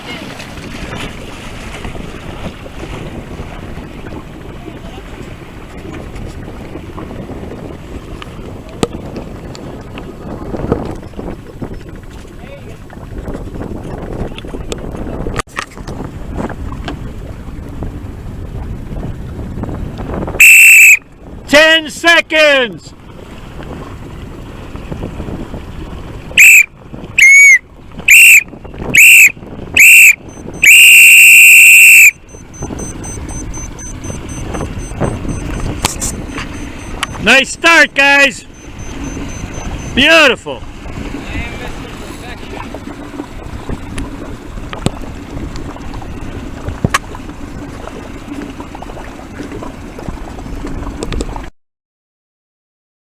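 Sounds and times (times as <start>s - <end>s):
water lapping against boat hull: 0.0s - 21.5s, 22.3s - 51.5s
whistle blasts: 20.4s - 21.0s, 26.4s - 40.1s.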